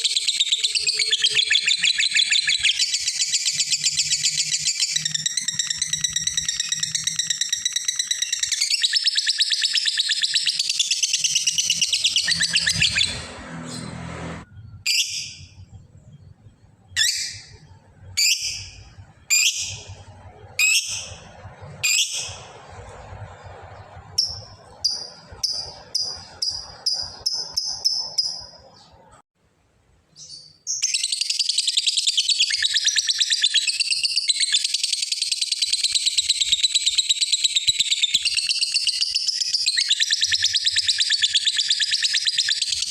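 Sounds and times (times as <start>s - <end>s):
lovebird chattering trill: 0.0s - 13.3s, 24.2s - 28.9s
bird sharp calls and chirps: 0.0s - 22.6s, 23.3s - 29.2s, 30.1s - 42.9s.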